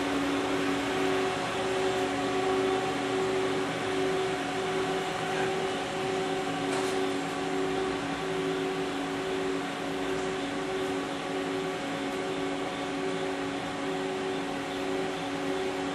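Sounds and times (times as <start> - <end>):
lathe machine hum: 0.0 - 15.9.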